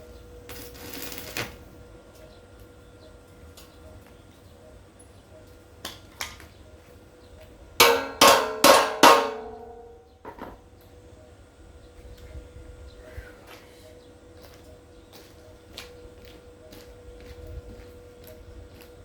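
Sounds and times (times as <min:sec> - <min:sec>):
metal struck ringing: 0:07.8 - 0:10.6.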